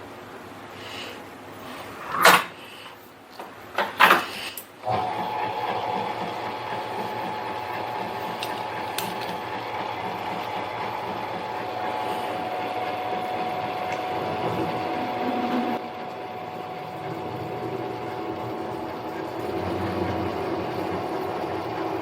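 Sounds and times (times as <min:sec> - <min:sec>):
lathe motor whining: 0:04.8 - 0:22.0.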